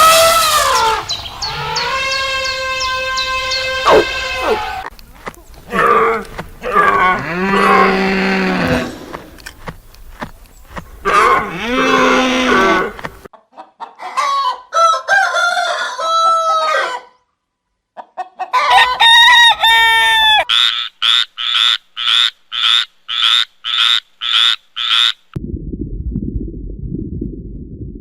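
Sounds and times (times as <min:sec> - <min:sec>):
rooster crowing: 0:00.8 - 0:04.9, 0:11.1 - 0:13.0, 0:14.0 - 0:17.2, 0:18.5 - 0:20.5
hens clucking: 0:01.3 - 0:14.6.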